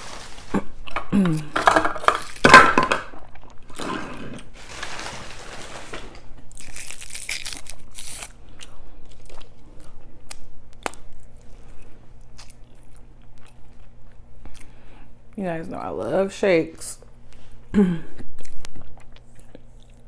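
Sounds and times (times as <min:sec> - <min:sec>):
food packaging crinkling: 0:00.0 - 0:03.0, 0:04.2 - 0:08.4.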